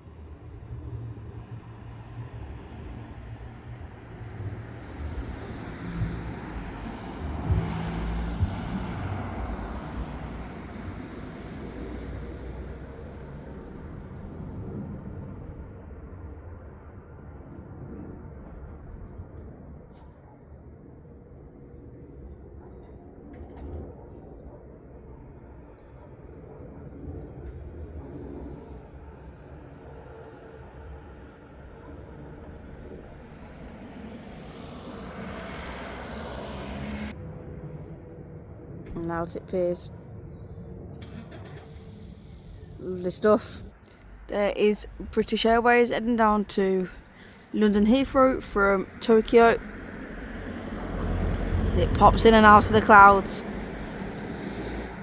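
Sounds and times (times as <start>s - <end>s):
vehicle passing by: 3.2s - 15.9s, 32.7s - 38.3s, 48.2s - 55.0s.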